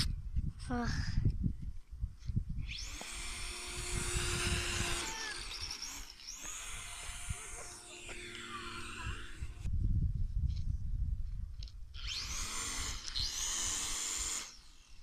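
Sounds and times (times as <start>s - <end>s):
wind rumbling on microphone: 0.0s - 13.9s
model airplane motor whining: 2.6s - 9.7s, 12.0s - 15.0s.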